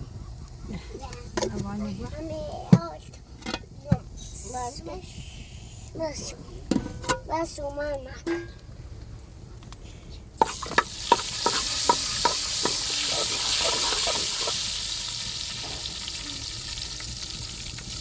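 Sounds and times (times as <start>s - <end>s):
food sizzling in a pan: 10.4s - 18.0s.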